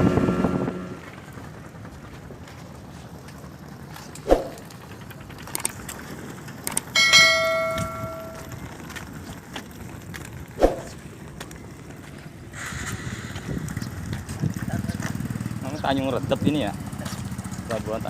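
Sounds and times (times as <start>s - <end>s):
ringing metallic clang: 7.0s - 8.6s.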